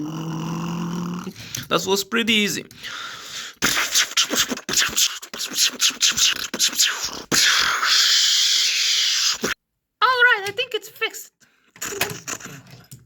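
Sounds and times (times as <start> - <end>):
person making breathy mouth sounds: 0.0 - 1.7, 2.8 - 9.6, 11.8 - 12.9
person hissing shhh: 2.8 - 9.6.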